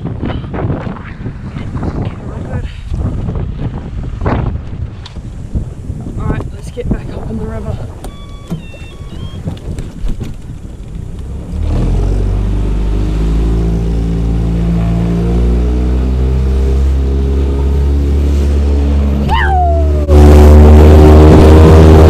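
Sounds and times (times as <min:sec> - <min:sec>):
outboard motor running: 0:07.0 - 0:22.0
short falling squeal: 0:08.1 - 0:09.4.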